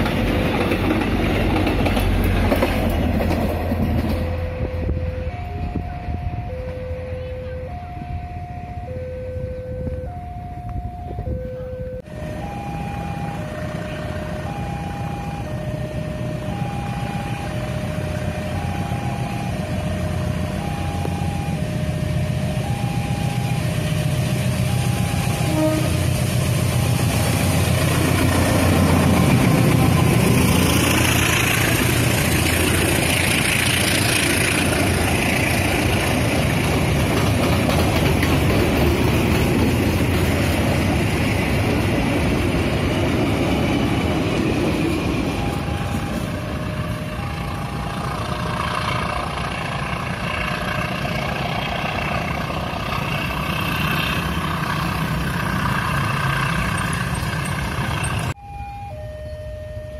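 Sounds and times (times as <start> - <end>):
diesel locomotive hum: 0.0 - 59.9
wagon wheel and rail noise: 0.0 - 59.9
crossing alarm two alternating tones: 4.2 - 32.7, 43.0 - 52.1, 56.6 - 59.9.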